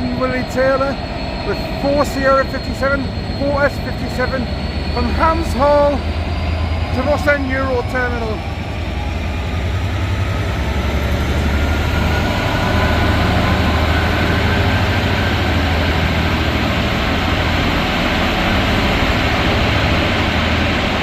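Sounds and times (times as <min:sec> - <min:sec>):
locomotive engine drone: 0:00.0 - 0:21.0
rumble of freight wagons: 0:00.0 - 0:21.0.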